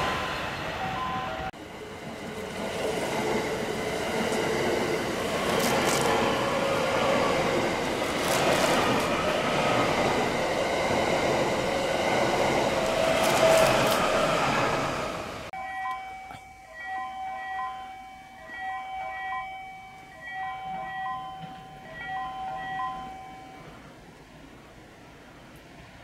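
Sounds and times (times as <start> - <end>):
train passing at speed: 0.0 - 15.5, 16.8 - 26.0.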